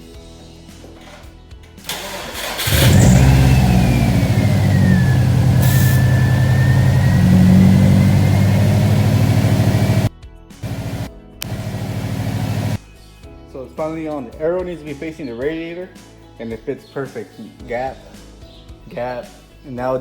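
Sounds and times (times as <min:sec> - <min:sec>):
car engine starting and idling: 0:01.9 - 0:12.8
thin engine whine: 0:01.9 - 0:12.8.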